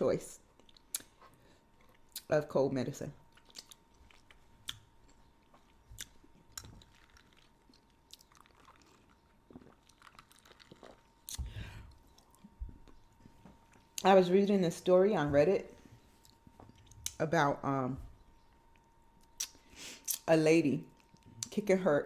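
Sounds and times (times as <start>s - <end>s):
close chewing with mouth clicks: 0.5s - 2.3s, 3.3s - 14.0s, 18.4s - 20.2s.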